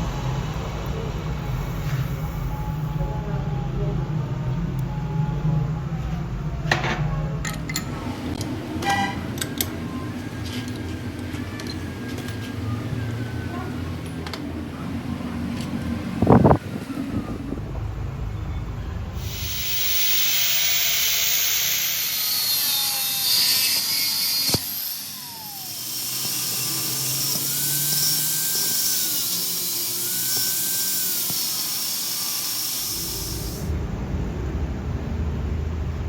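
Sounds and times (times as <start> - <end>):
power tool hissing: 19.2 - 33.8.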